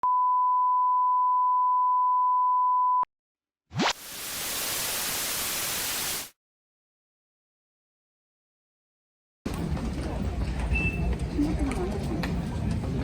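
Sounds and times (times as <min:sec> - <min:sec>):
white-noise static hiss: 0:04.0 - 0:06.3.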